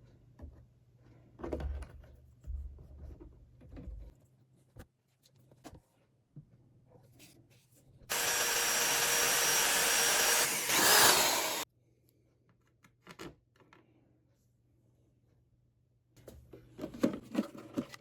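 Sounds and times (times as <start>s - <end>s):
electric drill boring: 8.1s - 11.6s.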